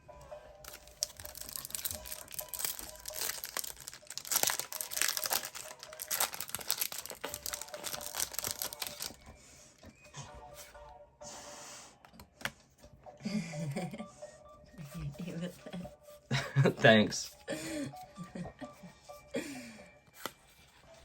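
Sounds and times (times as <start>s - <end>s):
foil wrapper crinkling and tearing: 0.6s - 9.2s.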